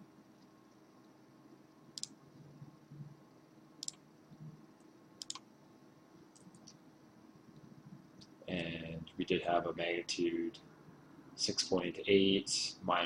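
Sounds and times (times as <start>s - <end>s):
faint room hum: 0.0s - 13.0s
computer mouse clicks: 2.0s - 2.2s, 3.8s - 4.5s, 5.2s - 5.4s.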